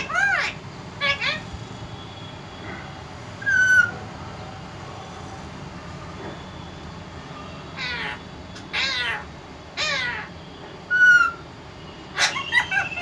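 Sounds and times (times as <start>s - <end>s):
parrot squawking and whistling: 0.0s - 1.4s, 3.4s - 4.0s, 10.9s - 11.4s, 12.1s - 13.0s.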